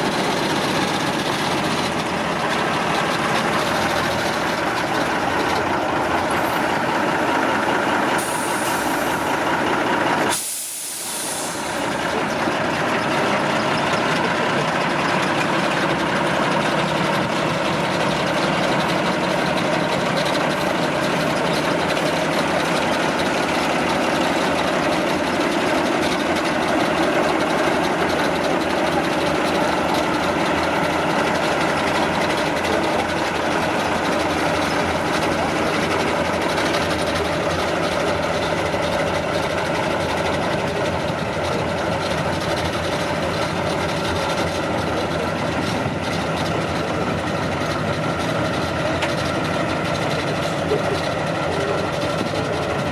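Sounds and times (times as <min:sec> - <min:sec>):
truck engine running: 0:00.0 - 0:52.9
hiss: 0:08.1 - 0:09.6, 0:10.2 - 0:12.1.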